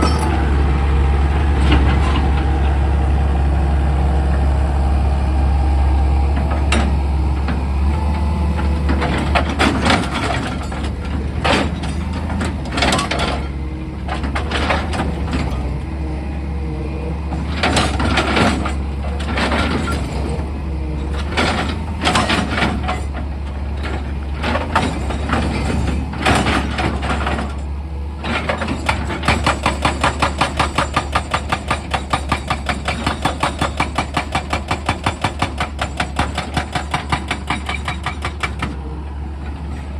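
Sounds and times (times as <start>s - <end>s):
excavator engine humming: 0.0s - 39.9s.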